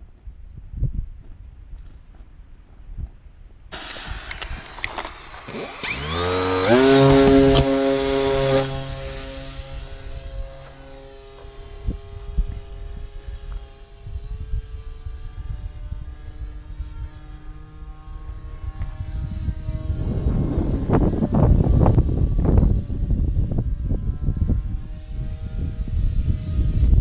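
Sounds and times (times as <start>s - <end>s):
hiss: 3.7s - 10.0s
model airplane motor drone: 3.7s - 27.0s.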